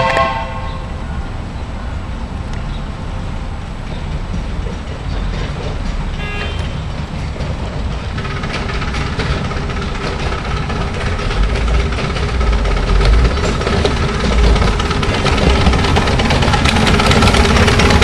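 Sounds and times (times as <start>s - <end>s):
high train toot: 0.0s - 1.1s, 6.1s - 7.1s
miniature train rumbling and clattering: 0.0s - 18.0s.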